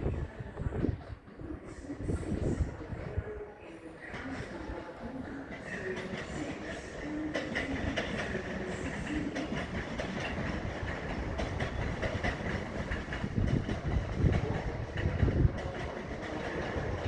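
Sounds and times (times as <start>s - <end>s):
low train rumble: 0.0s - 17.0s
train wheel clicks over rail joints: 5.5s - 17.0s.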